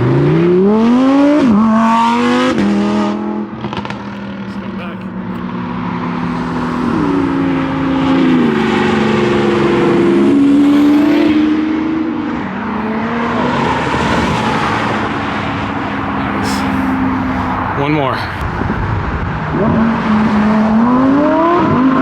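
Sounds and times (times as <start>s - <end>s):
car accelerating past: 5.2s - 22.0s.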